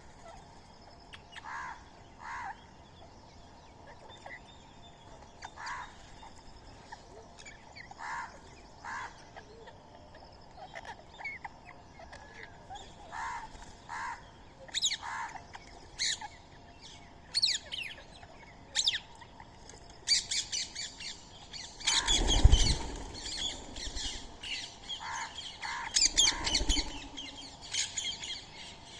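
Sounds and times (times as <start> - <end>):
parakeets squawking: 21.5 - 28.5.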